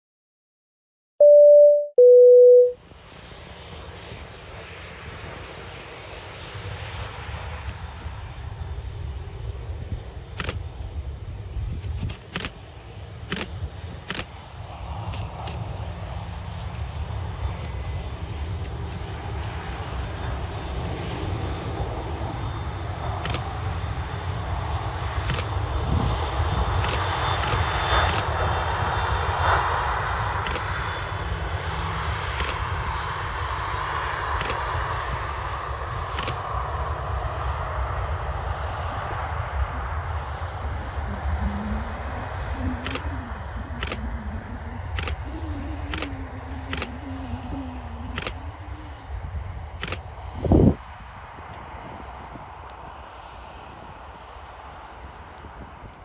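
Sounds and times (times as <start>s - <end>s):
jet engines rumbling: 2.9s - 56.0s
camera shutter clicking: 10.4s - 14.4s, 15.1s - 15.8s, 18.5s - 21.2s, 23.2s - 24.2s, 25.3s - 25.6s, 26.8s - 28.4s, 30.4s - 30.7s, 32.4s - 32.6s, 34.4s - 35.6s, 36.2s - 36.4s, 42.8s - 43.0s, 43.8s - 44.0s, 45.0s - 45.2s, 45.9s - 46.9s, 48.2s - 48.4s, 49.8s - 50.0s.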